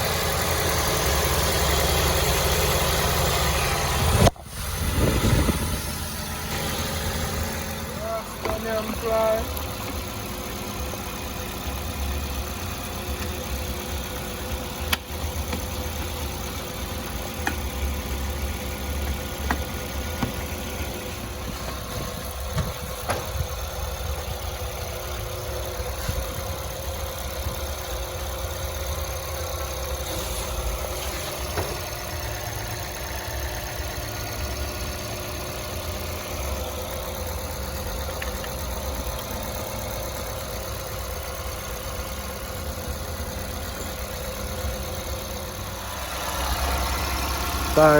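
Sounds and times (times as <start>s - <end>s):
car air conditioning hum: 6.5s - 10.4s.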